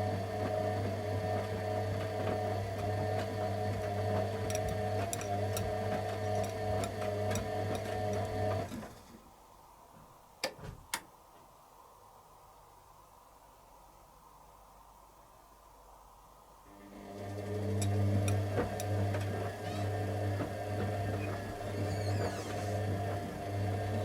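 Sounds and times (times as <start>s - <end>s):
washing machine humming and whining: 0.0s - 9.1s, 16.6s - 24.0s.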